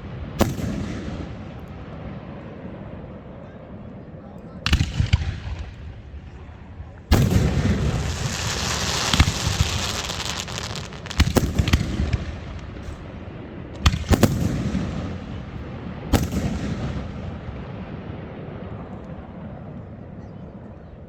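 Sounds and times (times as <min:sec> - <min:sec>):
fireworks crackling: 0:04.7 - 0:15.5
fireworks banging: 0:04.7 - 0:17.4.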